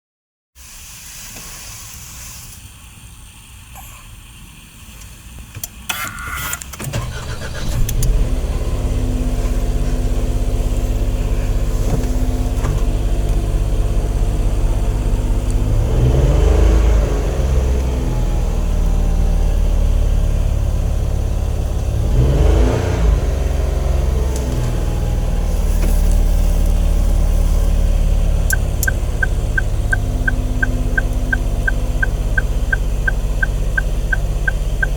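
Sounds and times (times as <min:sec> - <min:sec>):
car engine idling and revving: 0:01.3 - 0:34.9
electronic warning beeps: 0:28.5 - 0:34.9.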